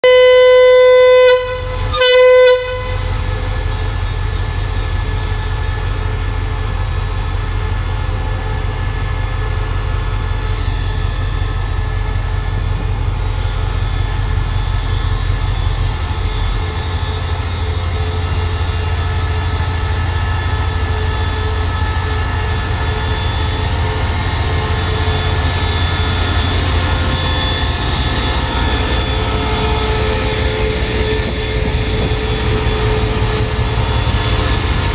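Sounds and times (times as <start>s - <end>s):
locomotive horn blasts: 0.0s - 3.4s
diesel engine droning: 0.0s - 34.9s.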